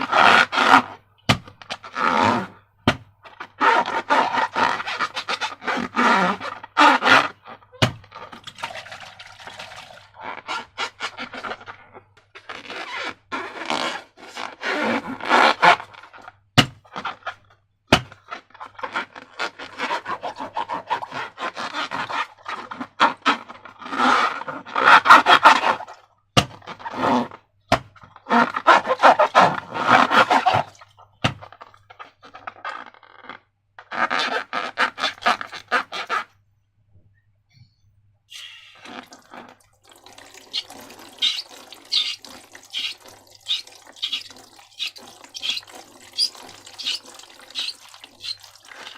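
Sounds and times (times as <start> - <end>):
slime squelching by hand: 38.4 - 48.9.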